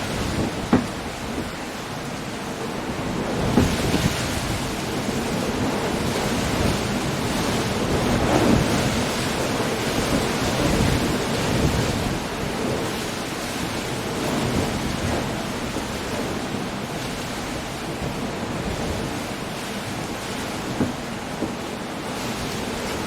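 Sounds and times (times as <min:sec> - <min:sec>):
heavy rain: 0:00.0 - 0:23.0
surf breaking on rocks: 0:00.0 - 0:23.0
wind: 0:00.0 - 0:23.0.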